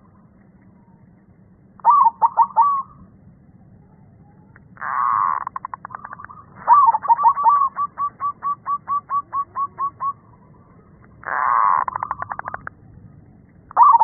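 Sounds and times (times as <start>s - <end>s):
dove cooing: 1.8s - 3.0s, 4.8s - 10.5s, 11.2s - 12.7s, 13.8s - 14.0s.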